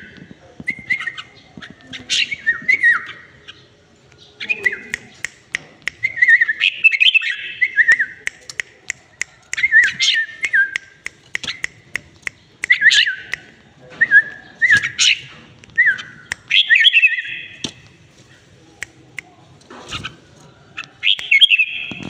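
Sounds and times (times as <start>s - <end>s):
bird singing warbled phrases: 0.0s - 22.0s
sharp clicks: 4.1s - 6.3s, 7.8s - 13.6s, 14.7s - 16.8s, 18.8s - 22.0s.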